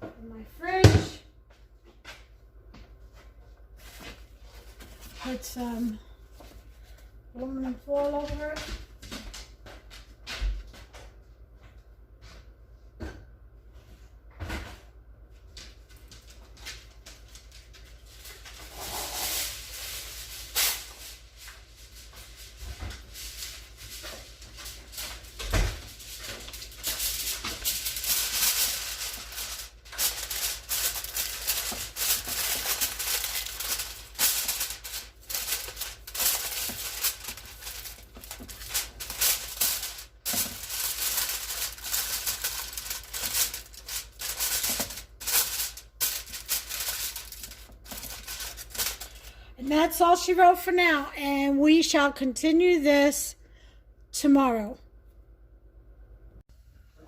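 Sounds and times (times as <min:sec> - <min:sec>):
aluminum foil crinkling: 0:15.7 - 0:50.0.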